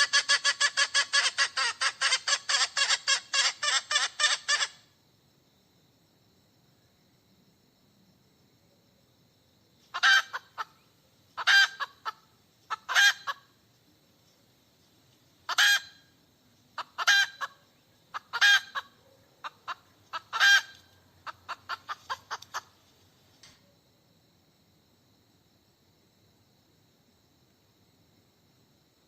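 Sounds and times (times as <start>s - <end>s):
hen cackling: 0.0s - 4.9s, 9.9s - 13.6s, 15.5s - 16.2s, 16.8s - 22.8s.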